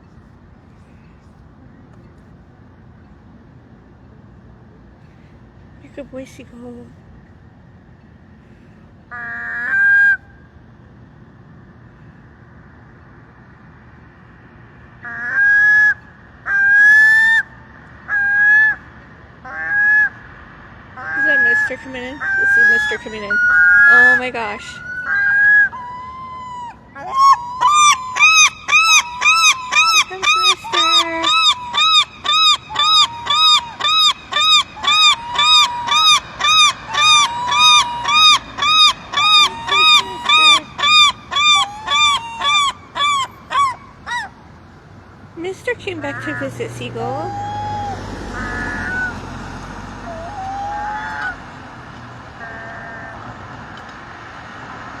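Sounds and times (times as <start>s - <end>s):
gull calling: 9.1s - 10.3s, 15.0s - 18.8s, 21.0s - 44.6s, 45.4s - 53.3s.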